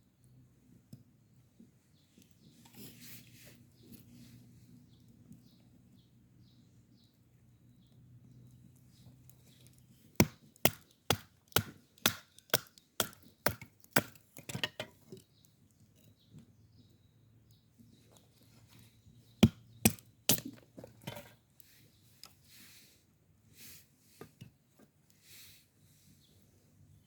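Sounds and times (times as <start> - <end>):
wood being chopped: 10.2 - 14.9, 19.4 - 20.7.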